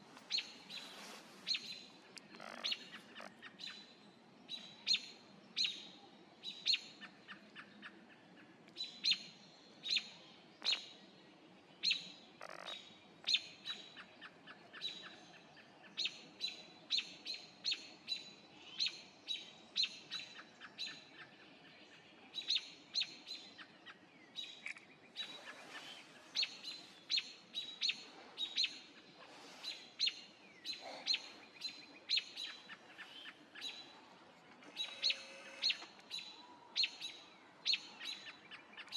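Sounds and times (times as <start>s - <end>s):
bird chirping: 0.2s - 6.8s, 22.3s - 38.9s.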